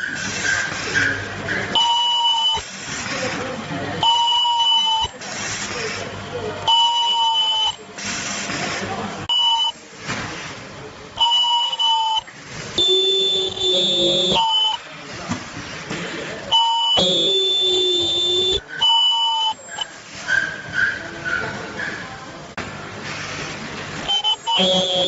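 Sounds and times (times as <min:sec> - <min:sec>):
welding machine high-pitched whine: 0:00.0 - 0:10.0, 0:11.2 - 0:14.8, 0:16.6 - 0:20.8, 0:24.0 - 0:25.0.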